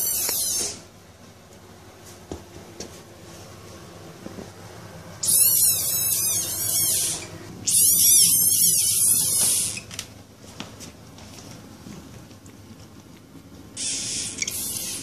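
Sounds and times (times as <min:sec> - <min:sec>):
frog screaming: 0:05.2 - 0:09.8, 0:13.8 - 0:15.0.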